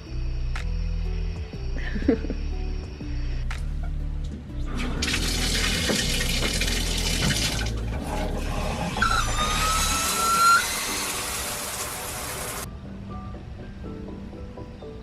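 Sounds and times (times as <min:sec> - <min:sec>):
water running: 0:04.7 - 0:12.7
brief high tone: 0:09.0 - 0:11.1.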